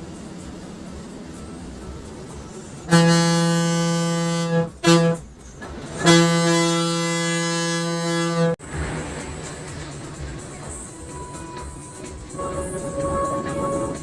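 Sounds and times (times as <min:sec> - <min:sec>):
bus horn blasts: 0:02.8 - 0:05.3, 0:05.9 - 0:08.6, 0:12.3 - 0:14.0.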